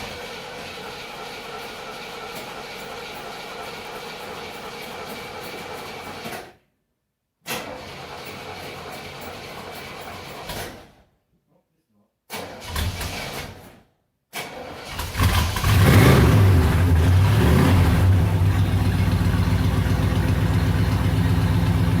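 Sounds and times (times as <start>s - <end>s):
car engine cranking: 14.4s - 22.0s
car engine idling: 15.6s - 22.0s.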